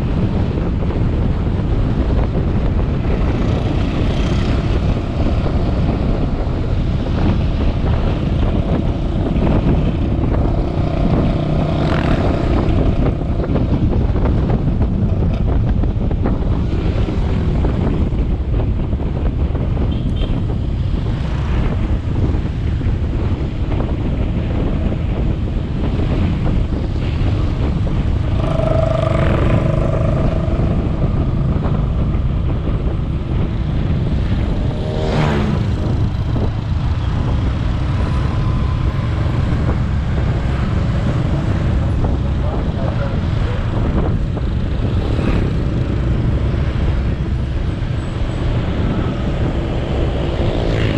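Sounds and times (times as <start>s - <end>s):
wind on microphone: 0.0s - 50.9s
motorbike engine running: 27.0s - 34.8s
pitched tone: 28.2s - 32.4s.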